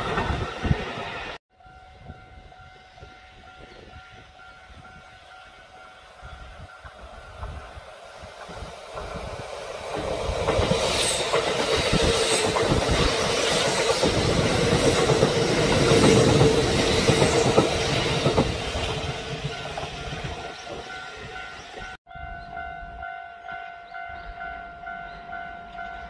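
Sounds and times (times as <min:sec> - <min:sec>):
train running hum: 0:00.0 - 0:23.1
train wheels clacking over joints: 0:08.3 - 0:20.9.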